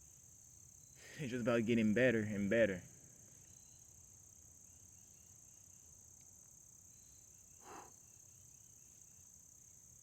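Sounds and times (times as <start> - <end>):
insect chorus trilling: 4.6 - 10.0.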